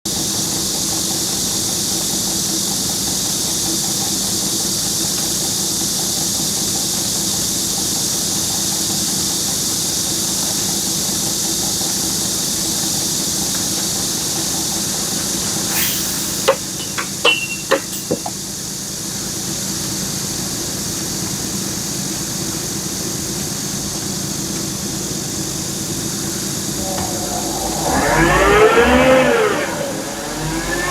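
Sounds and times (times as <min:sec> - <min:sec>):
engine running with high hiss: 0:00.4 - 0:30.9
sharp metal clanks: 0:15.8 - 0:18.4.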